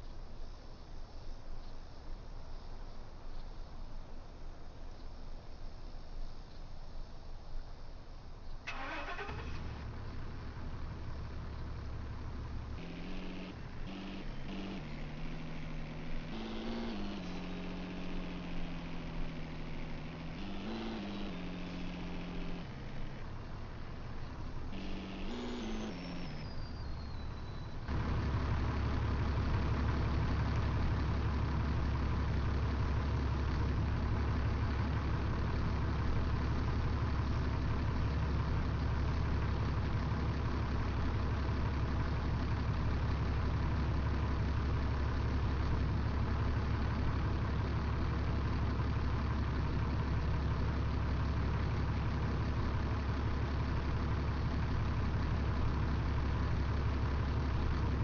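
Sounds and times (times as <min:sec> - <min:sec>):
truck engine idling: 0:08.6 - 0:58.0
falling electronic tones: 0:24.8 - 0:27.4.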